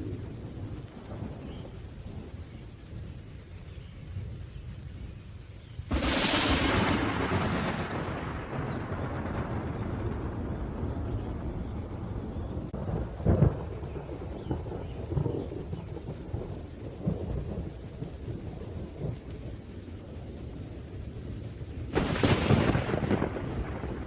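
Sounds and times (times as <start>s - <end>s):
steady rain: 0.0s - 24.0s
thunder rumbling: 0.0s - 24.0s
sharp thunderclap: 5.9s - 17.7s, 21.8s - 24.0s.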